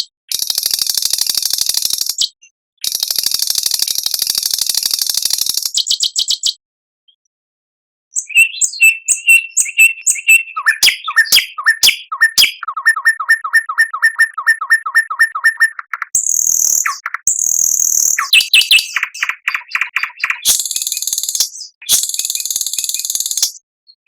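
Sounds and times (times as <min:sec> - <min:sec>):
songbird singing: 0:08.1 - 0:24.0
harsh high bird chatter: 0:08.2 - 0:23.6.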